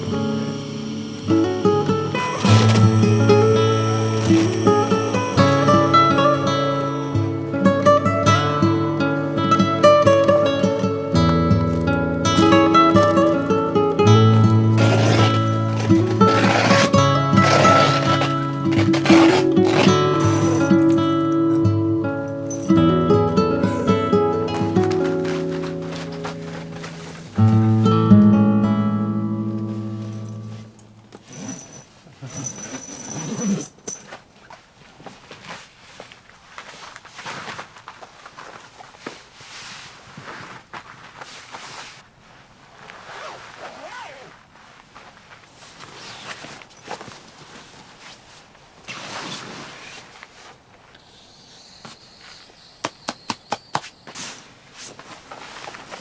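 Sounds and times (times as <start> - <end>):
acoustic guitar chord: 0.0 - 31.1
rustling handling noises: 0.0 - 56.0.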